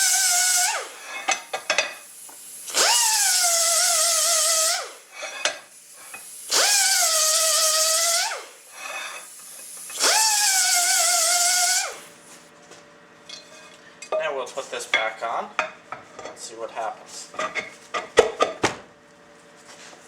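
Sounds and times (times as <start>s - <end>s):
power tool grinding screw heads: 0.0s - 12.1s.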